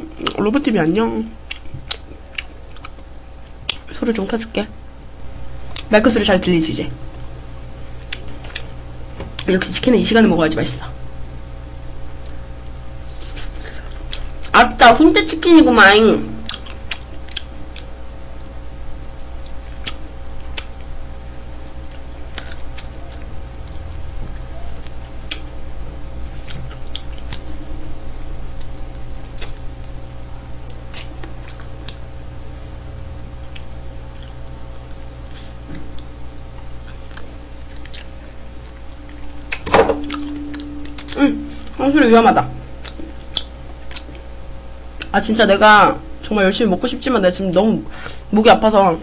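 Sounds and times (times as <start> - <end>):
steady low hum: 0.0 - 49.0
chewing and lip-smacking: 1.4 - 4.3, 8.0 - 9.5, 12.2 - 14.5, 16.4 - 18.6, 19.2 - 41.8, 42.7 - 44.3.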